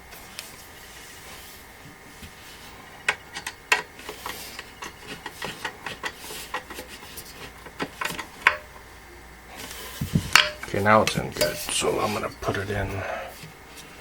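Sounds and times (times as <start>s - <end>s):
screwdriver clicking and scraping: 3.1s - 8.8s.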